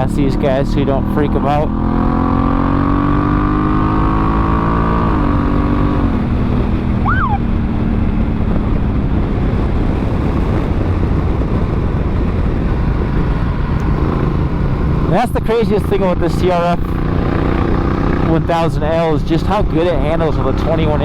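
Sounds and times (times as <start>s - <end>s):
motorcycle engine accelerating: 0.0s - 21.0s
wind rush: 5.0s - 18.7s
rising and falling chirp: 7.0s - 7.5s.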